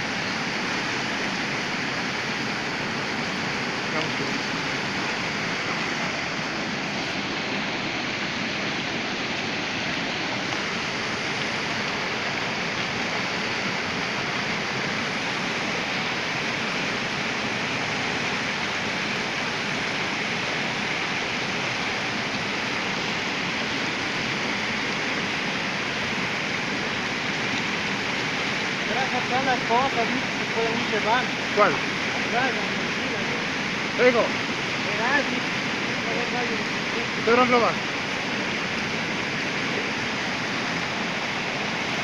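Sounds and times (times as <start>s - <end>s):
waterfall roaring: 0.0s - 42.0s.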